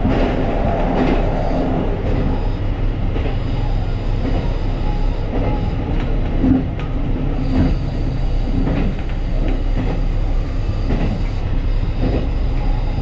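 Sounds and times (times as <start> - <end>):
train rumbling on rails: 0.0 - 13.0
train wheel clicks: 3.1 - 13.0.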